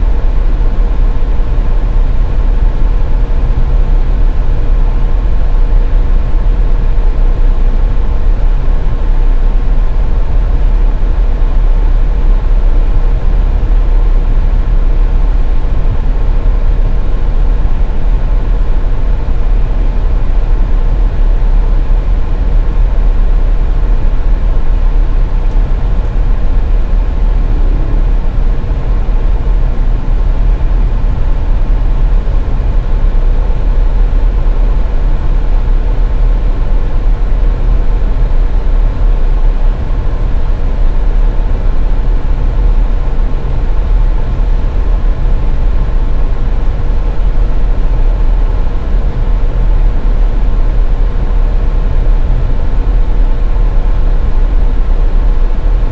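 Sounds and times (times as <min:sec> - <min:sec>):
car tyre road noise: 0:00.0 - 0:55.9
faint steady hum: 0:00.0 - 0:55.9.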